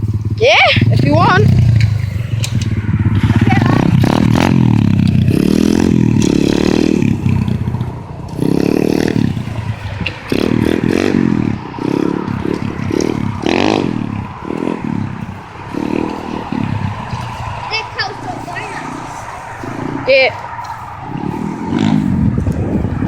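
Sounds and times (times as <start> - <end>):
motorbike engine revving: 0.0 - 23.0
clattering and scraping: 0.8 - 5.3.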